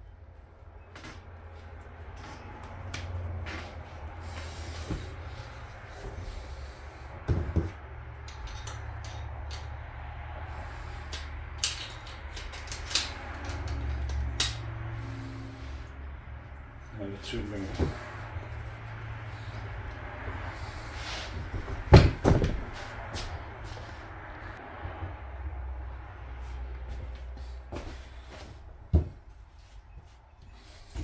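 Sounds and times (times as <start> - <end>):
metal parts clicking and knocking: 7.3 - 9.8, 11.0 - 14.7.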